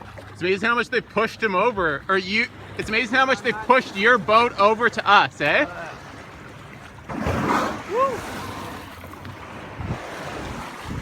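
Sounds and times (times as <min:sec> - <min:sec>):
water slapping against boat: 0:00.0 - 0:11.0
water rushing surge: 0:02.2 - 0:11.0
wind on microphone: 0:07.2 - 0:11.0.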